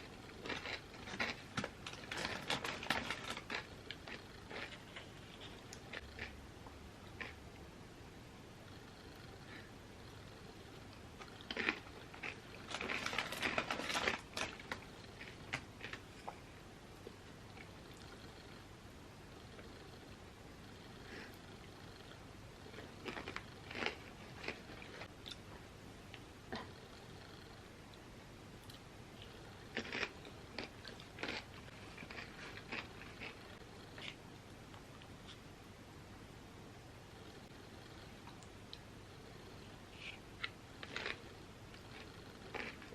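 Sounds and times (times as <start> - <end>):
crunchy chips being chewed: 0.1 - 6.4, 7.1 - 7.4, 11.2 - 16.4, 22.7 - 25.4, 28.6 - 34.2, 40.4 - 42.9.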